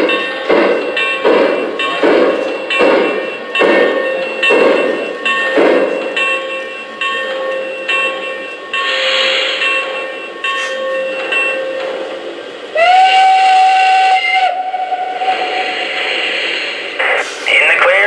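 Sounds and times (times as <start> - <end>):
steam hiss: 8.7 - 10.9, 12.8 - 17.8
steam whistle: 12.7 - 16.6
steam exhaust chuffing: 12.7 - 18.0.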